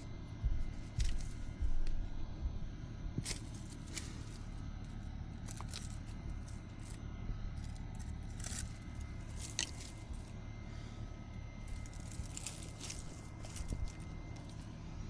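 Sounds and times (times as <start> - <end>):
steady low rumble: 0.0 - 15.0
stems and brush scraping: 0.7 - 2.0, 3.2 - 10.9, 11.6 - 14.8.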